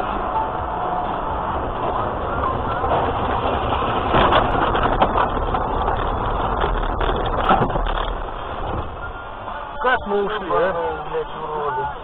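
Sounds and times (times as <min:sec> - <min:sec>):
road and engine rumble: 0:00.0 - 0:12.0
short knocks and rattles: 0:02.8 - 0:08.9.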